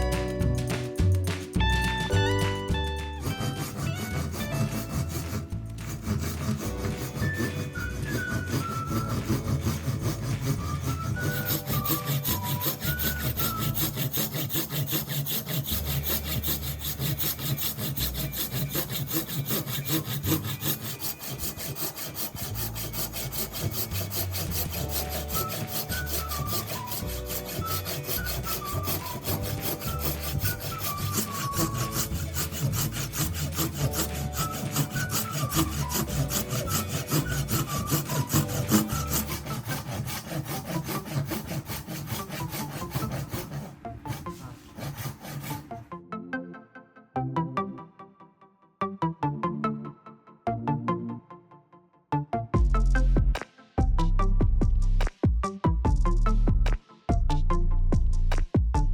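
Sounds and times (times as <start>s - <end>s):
background music: 0.0s - 58.9s
rasping wood: 2.0s - 45.7s.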